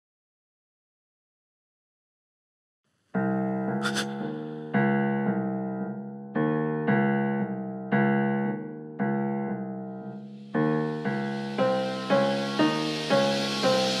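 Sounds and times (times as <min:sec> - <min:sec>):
slow piano chords: 0:03.2 - 0:14.0
soft hissing swell: 0:03.8 - 0:04.5, 0:10.3 - 0:14.0.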